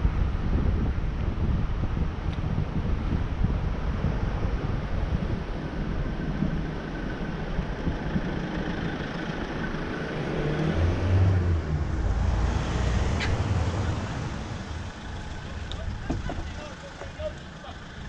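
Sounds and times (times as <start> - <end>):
wind rumble on microphone: 0.0 - 16.6
street traffic: 0.0 - 18.0
vehicle engine passing close: 3.9 - 17.8.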